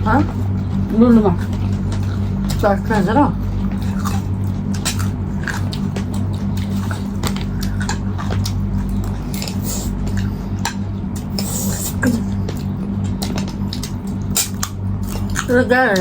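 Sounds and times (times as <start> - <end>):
steady low hum: 0.0 - 16.0
chewing with clicks: 1.4 - 2.7, 3.5 - 16.0.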